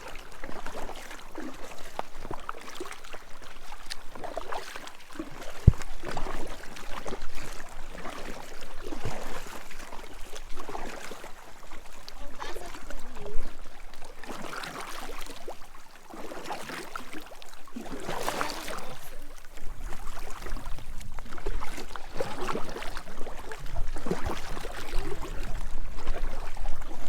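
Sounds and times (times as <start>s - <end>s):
paddle strokes splashing water: 0.0s - 27.0s
wind rumbling on microphone: 18.8s - 27.0s.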